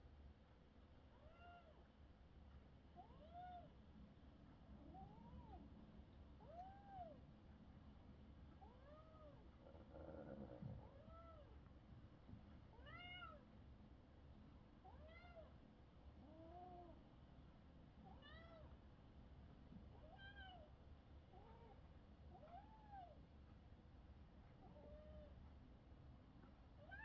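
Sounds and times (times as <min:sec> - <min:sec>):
kitten meowing faintly: 0:19.7 - 0:27.0.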